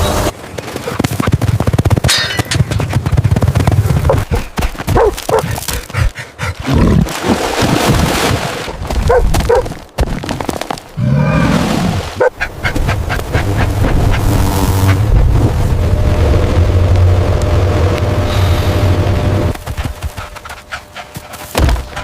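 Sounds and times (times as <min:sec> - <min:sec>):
dog barking and whimpering: 0:05.0 - 0:05.5, 0:09.1 - 0:09.7.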